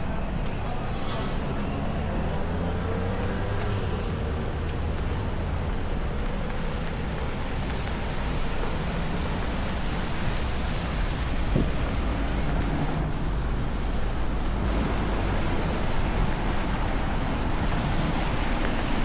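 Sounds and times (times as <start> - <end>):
city traffic noise: 0.0 - 19.0
heavy rain falling: 5.3 - 19.0.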